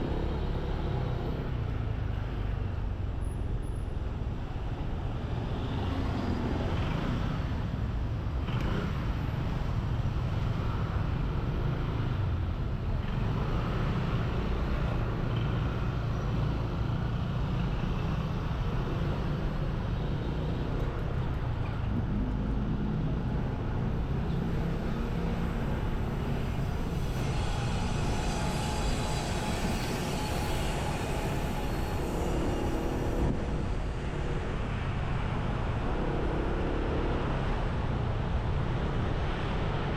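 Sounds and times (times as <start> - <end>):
road traffic: 0.0 - 39.9
high-pitched engine: 24.2 - 35.1.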